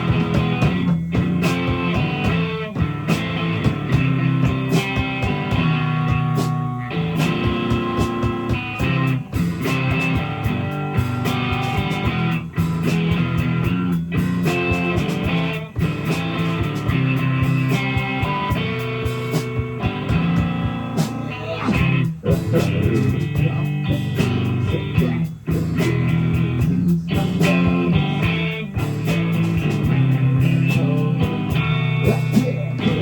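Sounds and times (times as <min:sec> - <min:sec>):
bass line: 0:00.0 - 0:33.0
drum hits: 0:00.0 - 0:33.0
electric guitar: 0:00.0 - 0:33.0.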